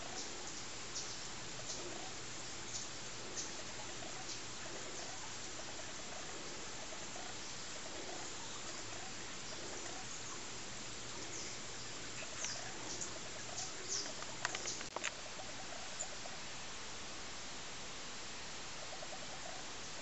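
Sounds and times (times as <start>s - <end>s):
outdoor hiss: 0.0s - 20.0s
sharp clicks: 14.0s - 15.2s.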